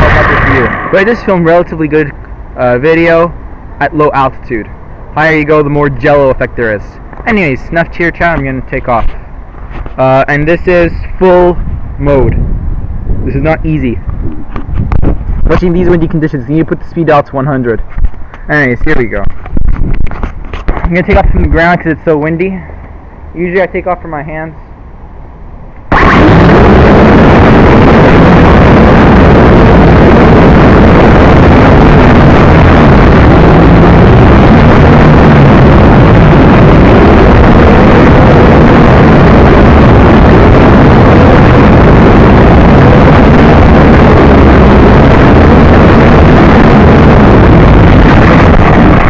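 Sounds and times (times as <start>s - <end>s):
drone motors and propellers: 0.0s - 1.4s.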